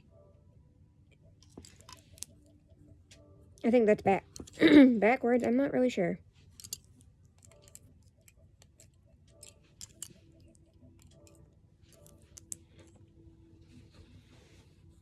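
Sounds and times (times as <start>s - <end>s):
plastic toy pieces clicking: 7.4s - 10.2s.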